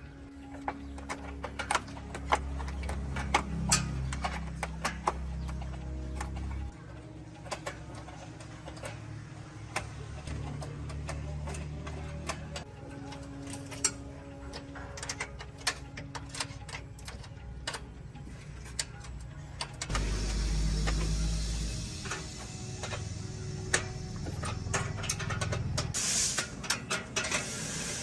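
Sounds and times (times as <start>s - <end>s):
hand tools clicking on metal: 0.3s - 28.0s
low steady hum: 19.8s - 26.0s.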